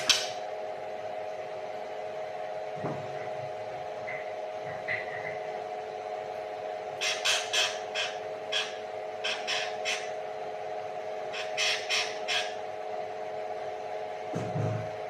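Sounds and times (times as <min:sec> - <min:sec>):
songbird raspy calls: 0:00.0 - 0:00.4, 0:07.0 - 0:10.2, 0:11.3 - 0:12.6
steady low hum: 0:00.0 - 0:15.0.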